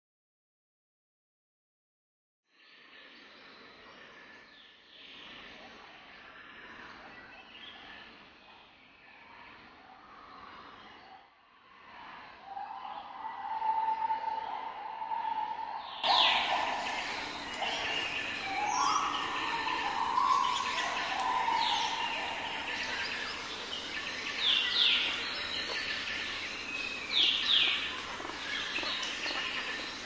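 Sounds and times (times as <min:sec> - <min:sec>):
lower longer bird notes: 0:12.5 - 0:25.5
high bird chirps: 0:16.0 - 0:25.8.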